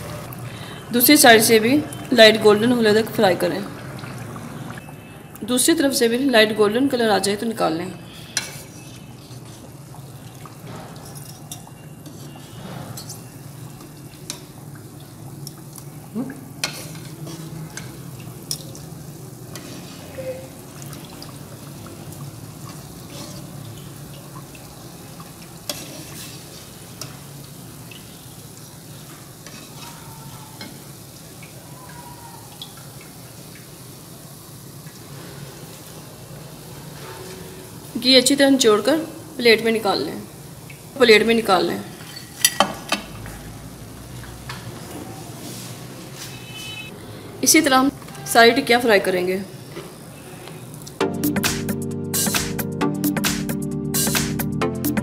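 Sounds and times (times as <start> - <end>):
patties sizzling in oil: 0.2 - 51.0
metal spoon scraping a pan: 8.1 - 9.8, 10.8 - 13.4, 16.6 - 18.6, 22.7 - 23.6, 25.7 - 27.2, 29.4 - 30.0.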